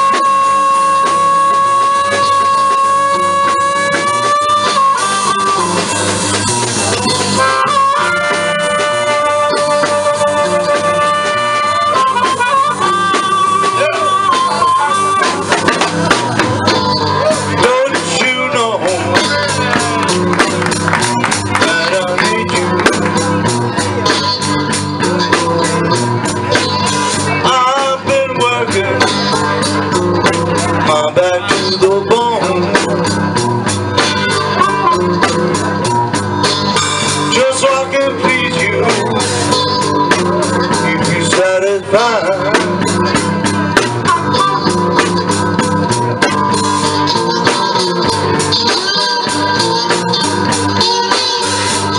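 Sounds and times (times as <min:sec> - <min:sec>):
blues trio playing live: 0:00.0 - 0:51.9.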